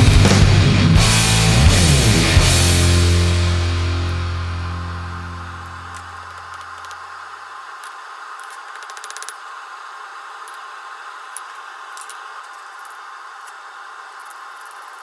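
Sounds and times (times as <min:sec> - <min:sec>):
low sustained musical note: 0:00.2 - 0:06.0.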